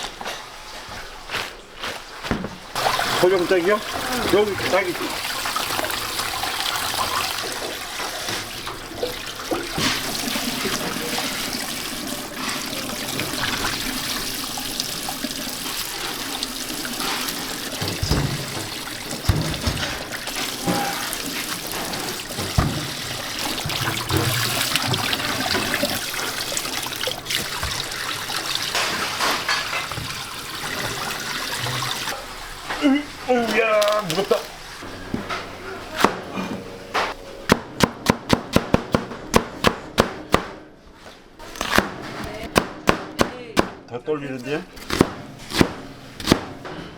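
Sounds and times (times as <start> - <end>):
water running from a tap: 2.8 - 34.8.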